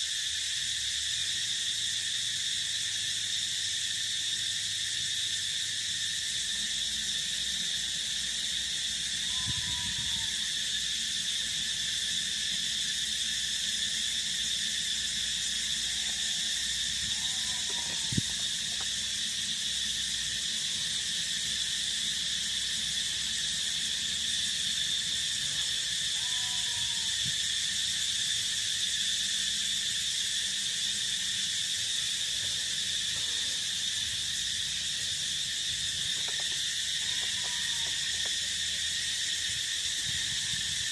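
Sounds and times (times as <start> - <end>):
insect chorus trilling: 0.0 - 40.9
frog or bird call: 9.2 - 10.6, 15.8 - 18.9, 26.1 - 27.5, 36.2 - 38.6.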